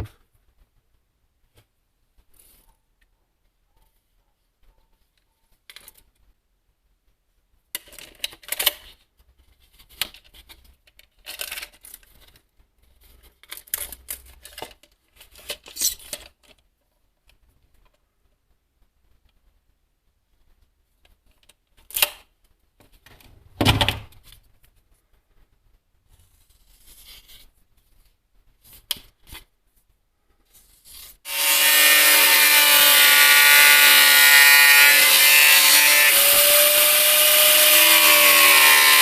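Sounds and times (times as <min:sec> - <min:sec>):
rustling and scraping materials: 0:01.5 - 0:03.1, 0:07.8 - 0:31.5.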